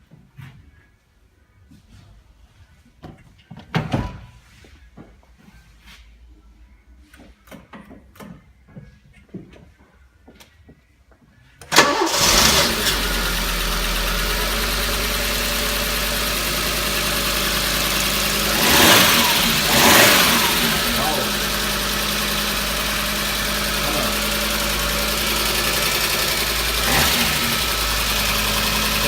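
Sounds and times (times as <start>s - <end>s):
car engine starting and idling: 11.6s - 29.0s.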